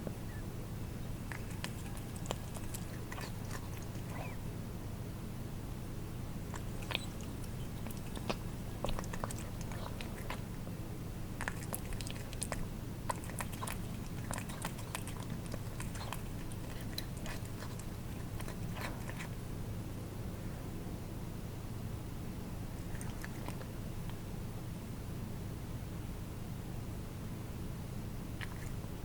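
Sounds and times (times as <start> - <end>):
steady low hum: 0.0 - 29.0
cats lapping and chewing food: 1.1 - 4.6, 6.2 - 19.6, 22.7 - 24.2, 28.3 - 29.0.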